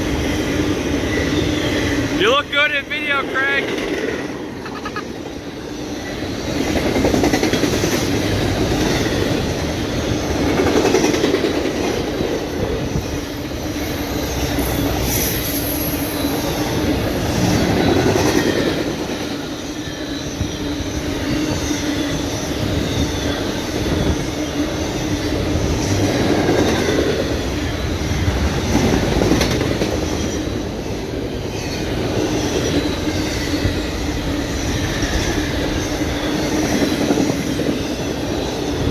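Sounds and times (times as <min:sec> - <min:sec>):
wheel squeal on rail: 0:00.2 - 0:02.2, 0:12.4 - 0:30.7, 0:31.5 - 0:38.9
train wheels clacking: 0:06.1 - 0:24.2.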